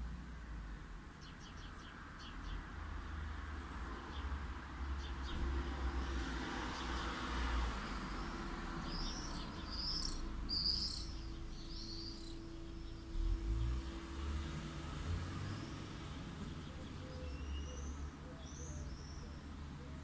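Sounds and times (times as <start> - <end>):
distant light traffic: 0.0 - 20.0
bird calling: 9.0 - 12.6.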